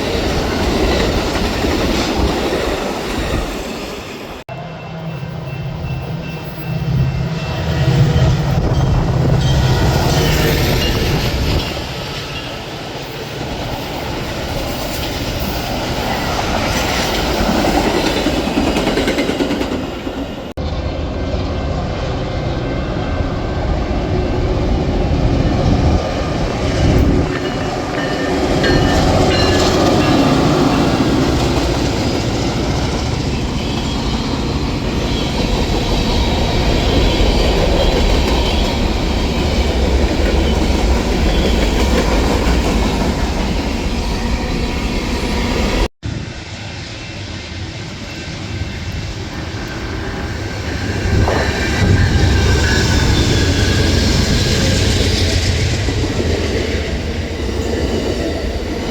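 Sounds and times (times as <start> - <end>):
train wheels rumbling on rails: 0.0 - 58.9
clickety-clack over rail joints: 25.5 - 44.1.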